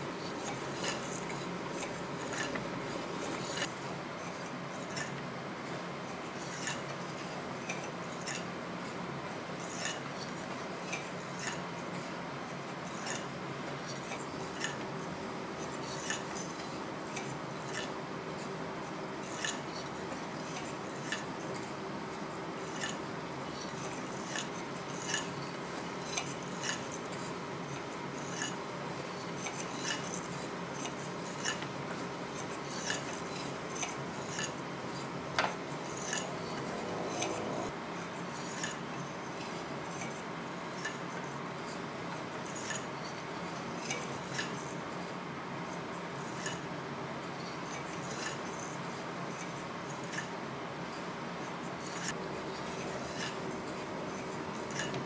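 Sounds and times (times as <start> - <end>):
shaft and gear whirring: 35.4 - 37.8.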